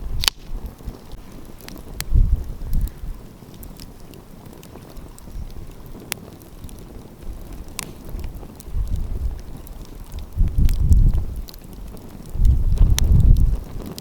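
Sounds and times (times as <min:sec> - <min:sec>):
fire popping: 0:00.0 - 0:14.0
wind buffeting microphone: 0:00.0 - 0:14.0
wood fire crackling: 0:00.0 - 0:14.0.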